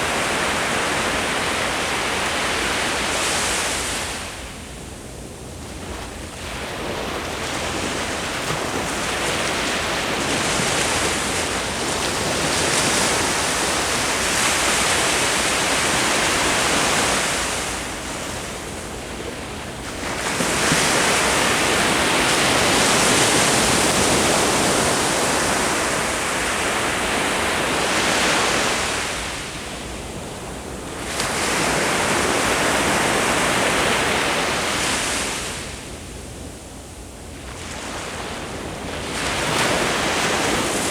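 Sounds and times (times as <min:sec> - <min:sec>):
ocean waves breaking: 0:05.7 - 0:29.5.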